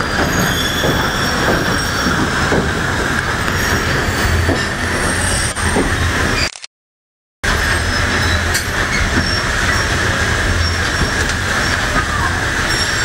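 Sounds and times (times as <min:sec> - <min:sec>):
train wheels rumbling on track: 0:00.0 - 0:06.4, 0:07.4 - 0:13.0
faint high squeals: 0:00.3 - 0:02.2.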